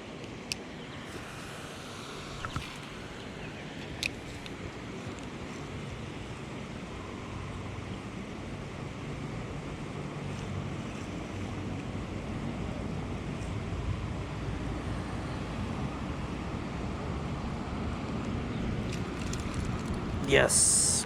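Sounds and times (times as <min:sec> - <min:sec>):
wind noise on microphone: 0:18.8 - 0:20.4.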